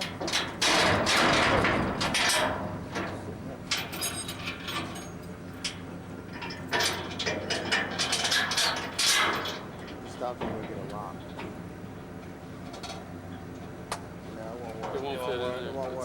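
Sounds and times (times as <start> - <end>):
metallic clicks and clanks: 0.0 - 11.6.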